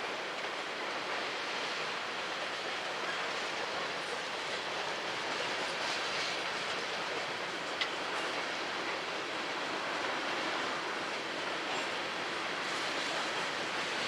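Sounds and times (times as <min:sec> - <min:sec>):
freight train rumbling on rails: 0:00.0 - 0:14.0.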